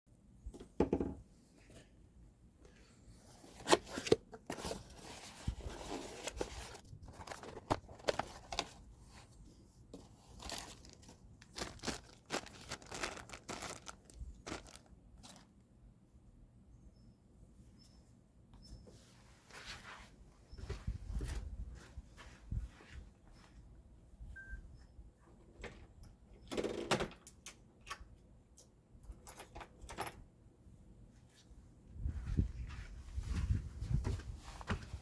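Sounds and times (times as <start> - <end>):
rustling and crinkling handling noises: 2.7 - 15.7, 18.9 - 23.6, 31.2 - 35.0.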